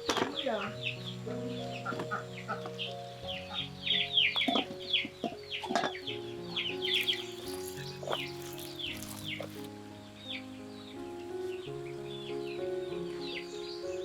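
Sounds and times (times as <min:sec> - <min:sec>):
background music: 0:00.0 - 0:14.0
birds chirping: 0:06.1 - 0:11.2.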